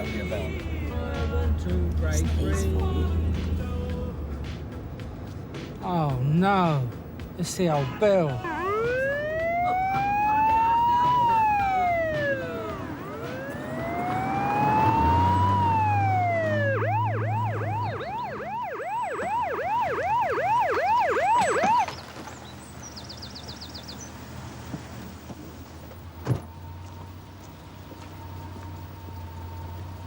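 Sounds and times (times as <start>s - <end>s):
police car siren wailing: 8.3s - 22.4s, 26.4s - 30.0s.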